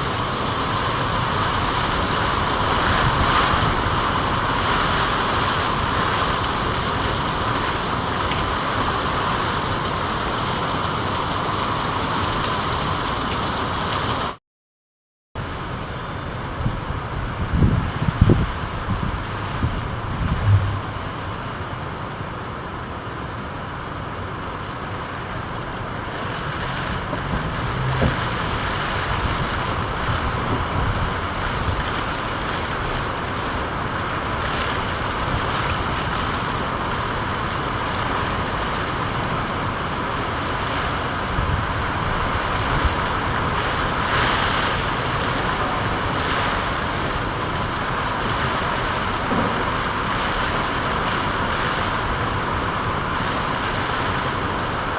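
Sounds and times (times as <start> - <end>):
heavy rainfall: 0.0 - 14.4, 15.4 - 54.9
low thump: 20.3 - 21.1, 49.3 - 49.8.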